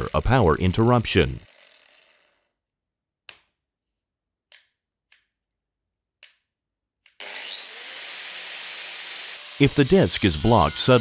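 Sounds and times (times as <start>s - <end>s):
angle grinder motor whine: 7.2s - 11.0s.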